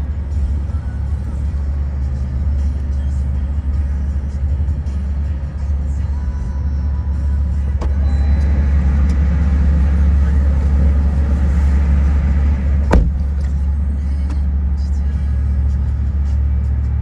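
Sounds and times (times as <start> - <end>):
boat motor rumbling: 0.0 - 17.0
sharp knock: 12.9 - 13.5.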